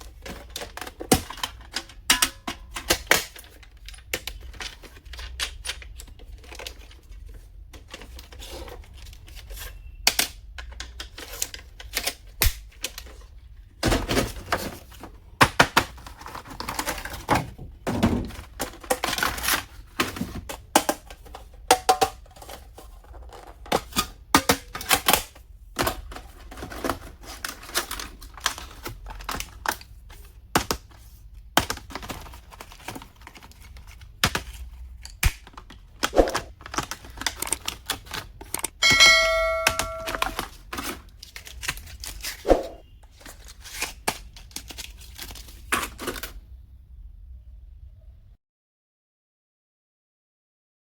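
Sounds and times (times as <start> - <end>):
packaging rustling: 10.7 - 24.0, 25.8 - 38.6, 39.7 - 46.4.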